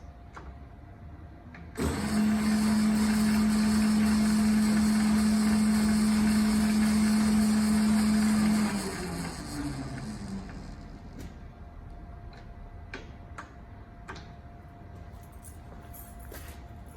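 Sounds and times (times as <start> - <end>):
lathe motor humming: 1.8 - 11.4.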